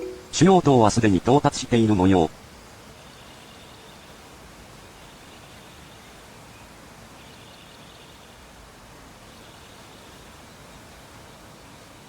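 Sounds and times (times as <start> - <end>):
faint high whine: 0.0 - 0.9
low background hiss: 0.0 - 12.0.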